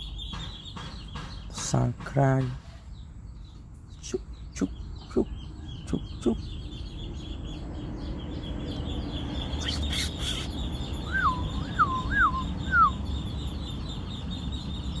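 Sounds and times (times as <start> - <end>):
high-pitched chirping: 9.4 - 13.7
brief hiss: 9.6 - 10.5
bird whistling descending notes: 9.6 - 13.0.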